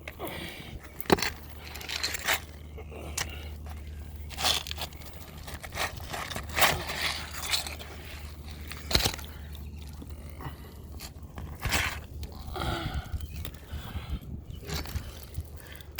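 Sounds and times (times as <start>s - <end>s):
tool scraping under roof shingles: 0.8s - 12.4s.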